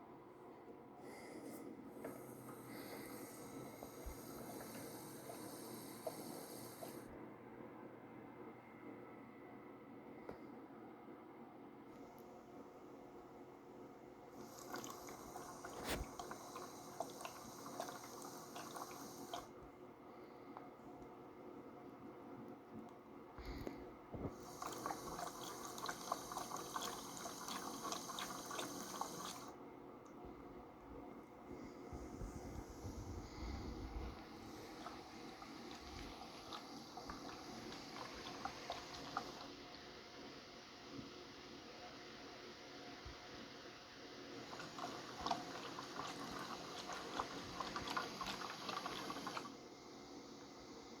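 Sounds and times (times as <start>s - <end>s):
water sloshing in washing machine: 2.0s - 7.1s, 14.3s - 19.6s, 24.2s - 29.6s, 31.4s - 39.8s, 44.3s - 49.7s.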